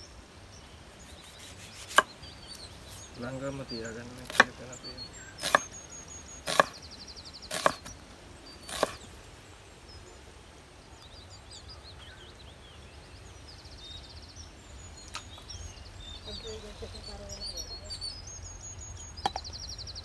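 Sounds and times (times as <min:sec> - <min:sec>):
bird chirps: 0:00.0 - 0:20.0
rapid high bird trill: 0:01.0 - 0:09.2
sharp chopping blows: 0:04.2 - 0:04.5, 0:05.4 - 0:05.8, 0:06.5 - 0:06.8, 0:07.5 - 0:07.9, 0:08.7 - 0:09.0.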